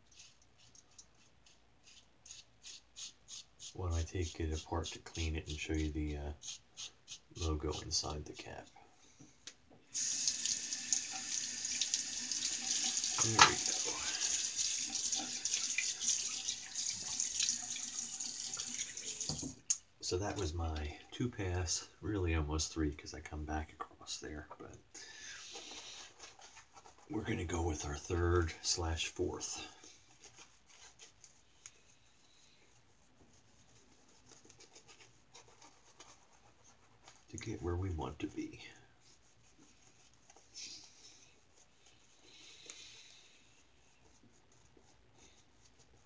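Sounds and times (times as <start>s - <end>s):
razor scratching on face: 0.1s - 7.8s
tap water running into sink: 10.0s - 19.6s.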